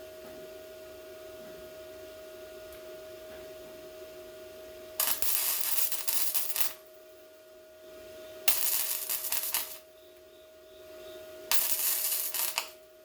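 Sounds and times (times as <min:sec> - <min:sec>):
steady hum: 0:00.0 - 0:13.0
welding crackle: 0:05.0 - 0:06.8, 0:08.5 - 0:09.9, 0:11.5 - 0:12.8.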